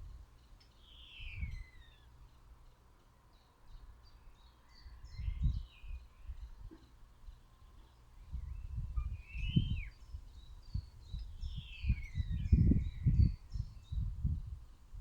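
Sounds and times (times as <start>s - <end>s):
wind gusts on microphone: 5.0s - 6.7s, 8.2s - 15.0s.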